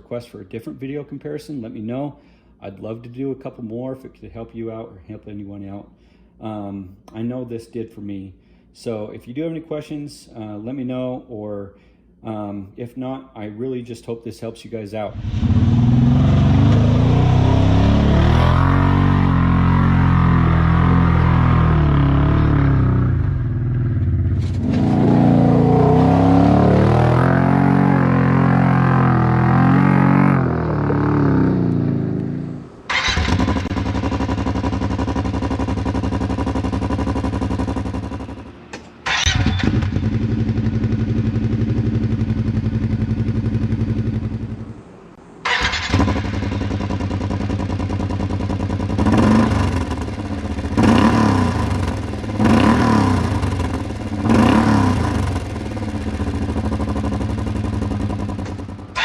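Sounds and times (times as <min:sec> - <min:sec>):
engine idling and revving: 0:15.2 - 0:44.8, 0:45.4 - 0:59.0.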